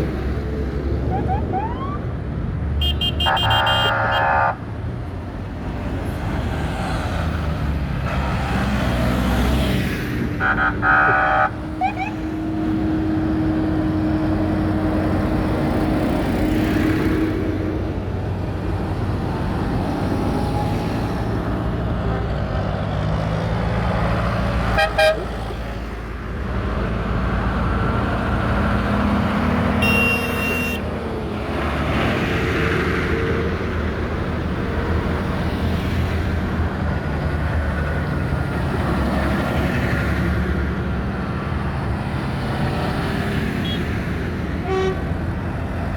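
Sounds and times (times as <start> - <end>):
tractor diesel engines passing: 0.0 - 45.9
vehicle horn tooting: 2.8 - 4.6, 24.8 - 25.3, 29.8 - 30.9, 44.6 - 45.0.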